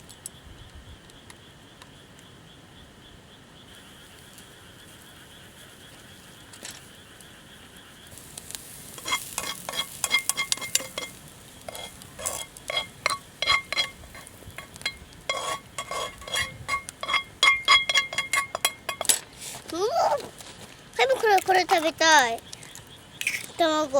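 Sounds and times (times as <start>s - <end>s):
food sizzling: 3.7s - 20.2s, 21.0s - 23.9s
utensil scraping metal pan: 8.9s - 19.7s, 23.2s - 23.6s
ringing clinks on pan: 9.0s - 11.2s, 11.8s - 19.1s.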